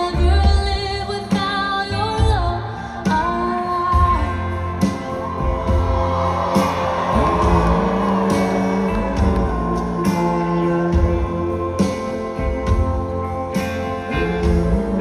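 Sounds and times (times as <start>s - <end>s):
bass: 0.0s - 15.0s
drum and cymbal hits: 3.1s - 15.0s
guitar notes: 3.8s - 15.0s.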